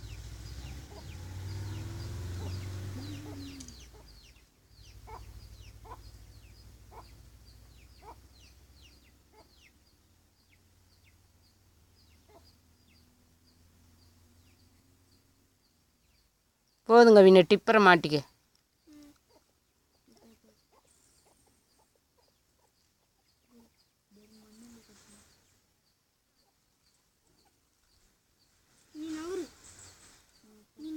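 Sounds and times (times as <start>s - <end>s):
chicks peeping: 0.0s - 13.6s
hen clucking: 2.4s - 6.3s, 7.8s - 9.7s.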